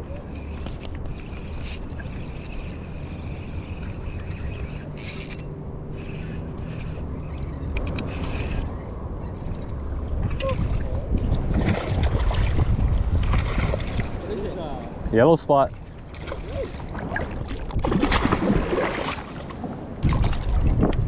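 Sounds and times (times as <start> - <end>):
wind rumbling on microphone: 0.0 - 21.0
high rattling mechanical buzz: 0.2 - 8.9.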